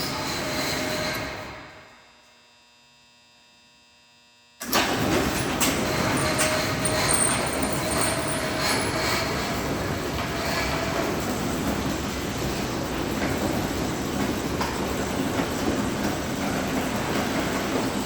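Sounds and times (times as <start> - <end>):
garage door mechanical rattle: 4.6 - 12.4.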